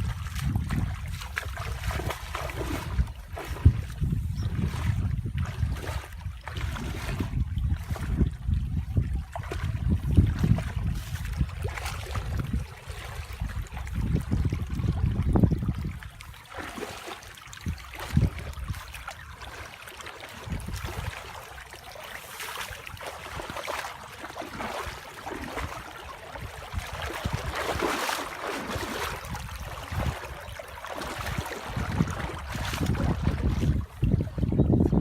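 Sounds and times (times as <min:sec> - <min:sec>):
water splashing and trickling: 0:00.0 - 0:35.0.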